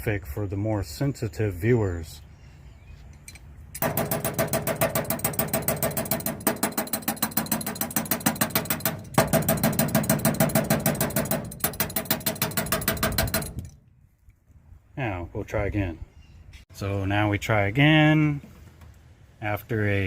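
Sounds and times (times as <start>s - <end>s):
hammer tapping on metal: 3.8s - 13.8s.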